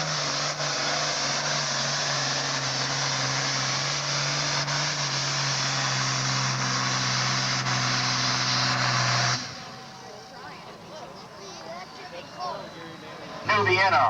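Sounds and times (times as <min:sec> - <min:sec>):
tractor diesel engine running hard: 0:00.0 - 0:14.0.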